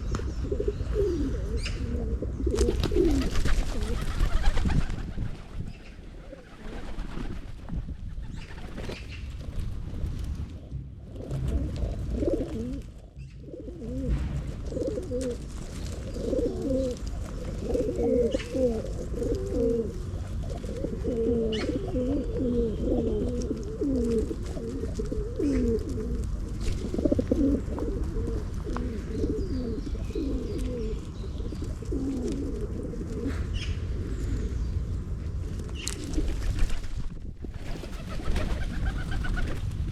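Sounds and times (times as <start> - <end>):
pigeons cooing: 0.0 - 7.6, 11.2 - 36.6, 37.6 - 39.6
low rumble: 9.3 - 16.1.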